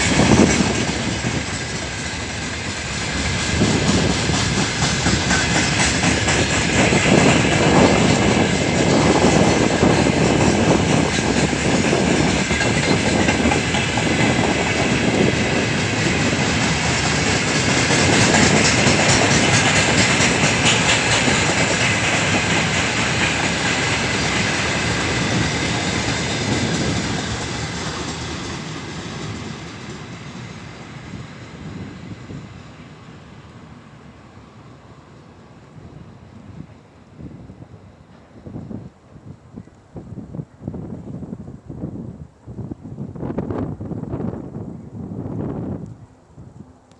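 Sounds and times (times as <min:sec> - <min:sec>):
freight train wheels clattering: 0:00.0 - 0:31.8.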